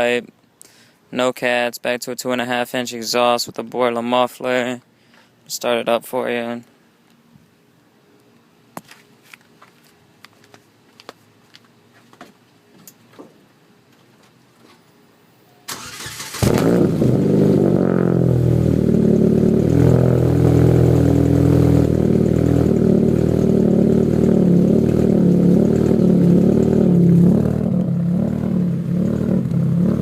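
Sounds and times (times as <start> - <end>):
starter cranking engine: 15.7 - 16.8
car engine idling: 15.8 - 30.0.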